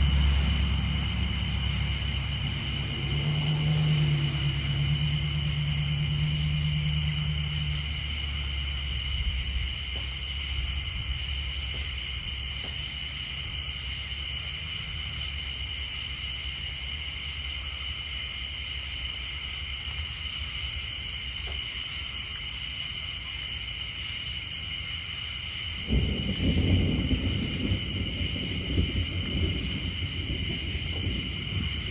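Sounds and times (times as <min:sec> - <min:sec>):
distant thunder rumble: 0:00.0 - 0:16.4, 0:25.6 - 0:31.9
tree frogs trilling: 0:00.0 - 0:31.9.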